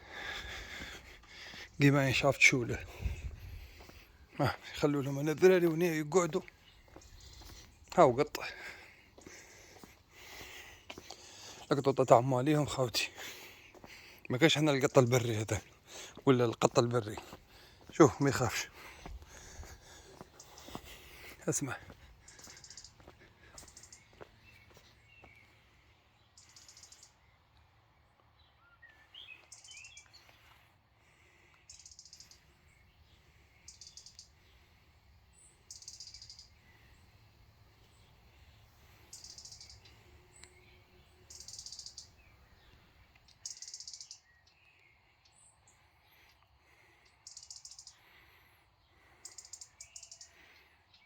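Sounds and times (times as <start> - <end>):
bird chirps: 0.0 - 9.8, 20.0 - 27.5, 28.3 - 30.6, 31.6 - 48.2, 48.9 - 51.0
bird trilling: 21.6 - 23.0, 31.7 - 32.4, 33.6 - 34.4, 35.7 - 36.6, 39.0 - 42.2, 43.4 - 44.3, 47.2 - 48.0, 49.2 - 50.4.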